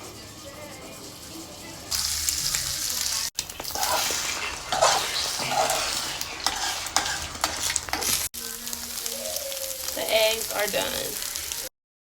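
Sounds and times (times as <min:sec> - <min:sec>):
eggs sizzling in frying pan: 0:00.1 - 0:11.7
scraping in pan: 0:03.2 - 0:08.3.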